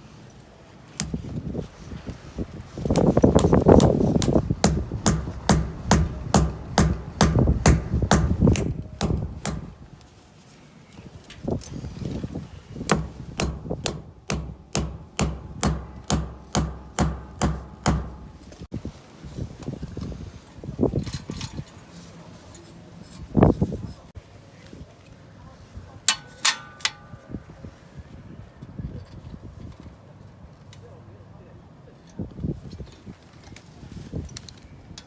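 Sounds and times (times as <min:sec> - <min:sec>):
hammer striking: 0:01.0 - 0:01.2, 0:02.9 - 0:09.8, 0:12.9 - 0:18.7.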